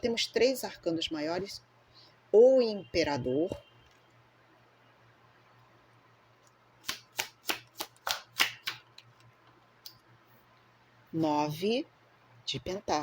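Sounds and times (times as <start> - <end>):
cards being shuffled: 6.8 - 9.3.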